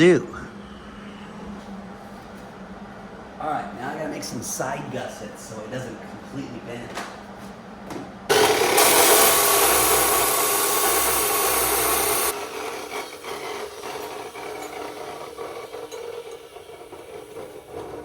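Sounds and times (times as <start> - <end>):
power tool grinding steel: 8.3 - 18.0.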